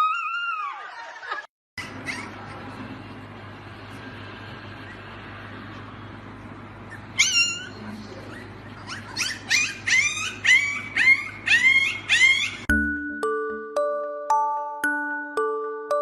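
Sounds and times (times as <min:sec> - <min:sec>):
puppy crying and yelping: 0:00.0 - 0:01.0, 0:01.8 - 0:02.7, 0:06.8 - 0:12.7.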